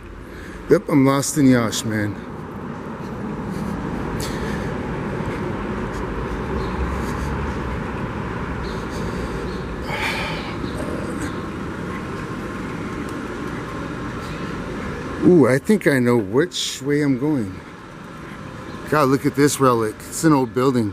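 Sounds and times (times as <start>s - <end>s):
city street traffic: 0.0s - 20.9s.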